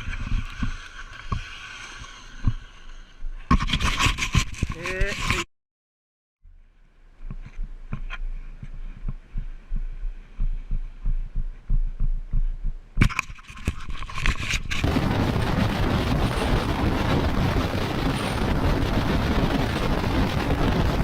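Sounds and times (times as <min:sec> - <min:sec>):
wind and road noise: 0:00.0 - 0:05.5, 0:06.5 - 0:21.0
steady low hum: 0:06.4 - 0:13.8, 0:14.6 - 0:21.0
low rhythmic thudding: 0:06.5 - 0:13.1.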